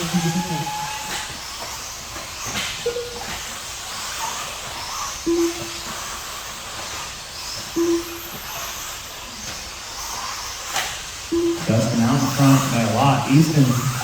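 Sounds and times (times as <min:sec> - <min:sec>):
small rc trucks hissing: 0:00.0 - 0:14.0
short single-pitched beeps: 0:05.3 - 0:05.7, 0:07.8 - 0:08.2, 0:11.3 - 0:12.6.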